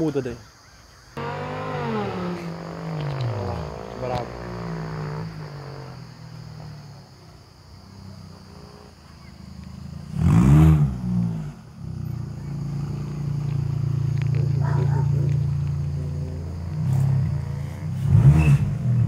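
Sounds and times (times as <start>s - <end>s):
car engine revving and humming: 1.2s - 19.0s.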